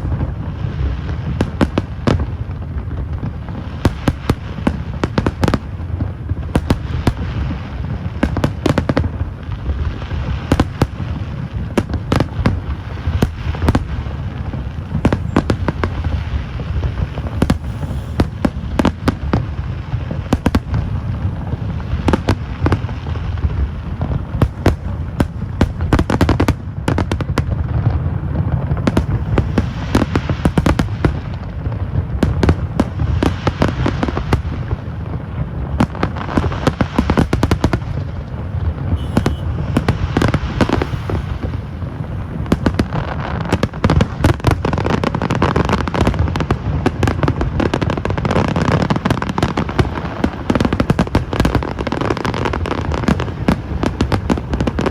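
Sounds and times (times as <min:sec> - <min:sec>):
fireworks bangs and crackles: 0:00.0 - 0:54.9
low rumble: 0:11.6 - 0:22.1, 0:27.6 - 0:32.8, 0:37.8 - 0:43.2.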